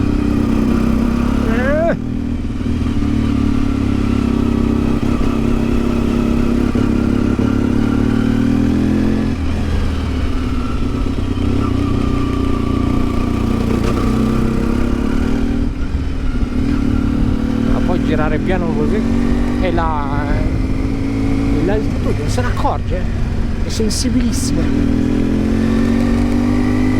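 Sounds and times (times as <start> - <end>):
motorcycle engine pulling at low revs: 0.0 - 26.9.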